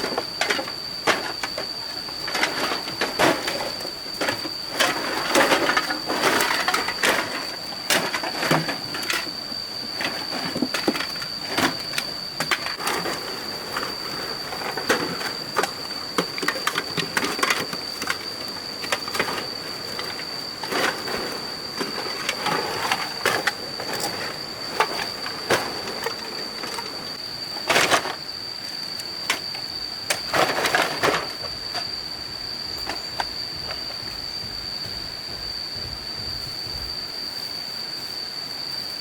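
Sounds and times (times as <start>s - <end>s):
high-pitched whine: 8.8s - 38.2s
knocking and scraping clatter: 32.7s - 37.0s.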